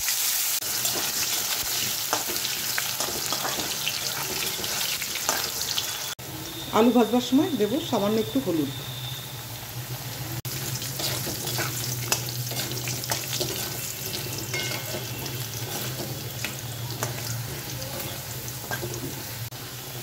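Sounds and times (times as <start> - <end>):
potatoes sizzling in hot oil: 0.0 - 20.0
spatula scraping a pan: 0.8 - 5.6, 10.8 - 19.4.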